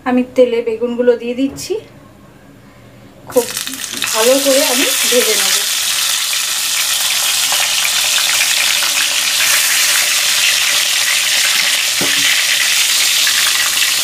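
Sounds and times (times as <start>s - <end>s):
eggplant sizzling in oil: 3.3s - 14.0s.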